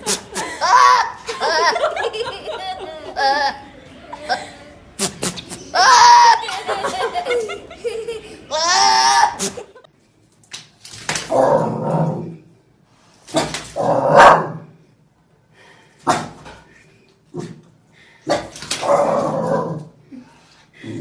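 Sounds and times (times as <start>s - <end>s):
dog barking: 14.1s - 14.7s.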